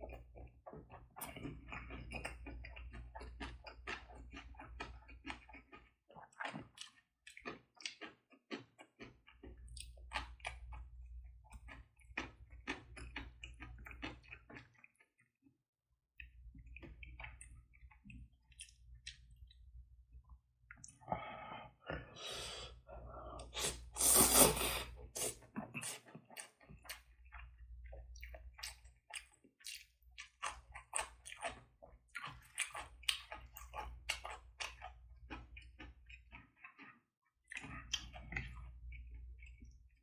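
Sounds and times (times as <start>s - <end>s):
wet chewing: 0.1s - 10.9s, 11.5s - 15.3s, 23.4s - 39.8s.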